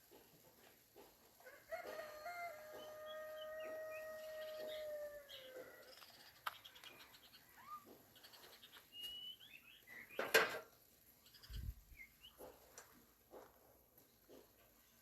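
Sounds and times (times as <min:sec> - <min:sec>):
birds calling and chirping: 0:02.8 - 0:10.4, 0:11.2 - 0:12.6.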